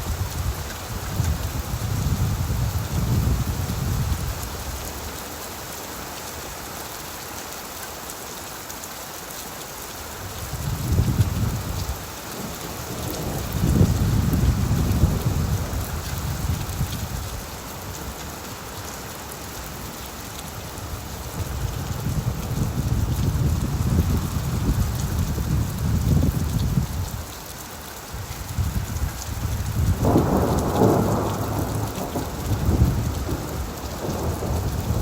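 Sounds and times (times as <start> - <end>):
rain falling on leaves: 0.0 - 35.0.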